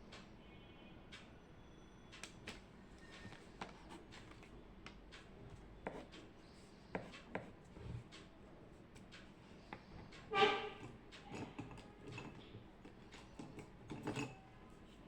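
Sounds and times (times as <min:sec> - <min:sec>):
pen writing on paper: 0:05.8 - 0:06.1.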